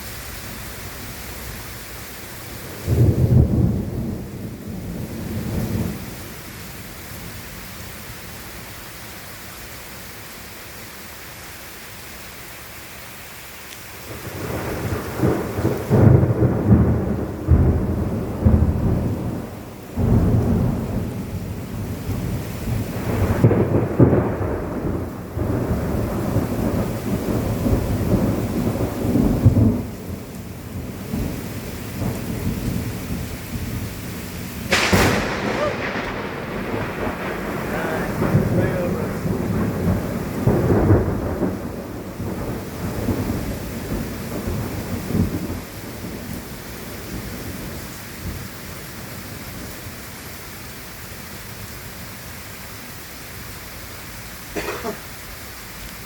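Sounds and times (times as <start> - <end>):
thunder rumbling: 0.0 - 8.7, 14.0 - 50.0
steady rain: 0.0 - 56.0
sharp thunder burst: 14.3 - 30.2, 34.6 - 46.5.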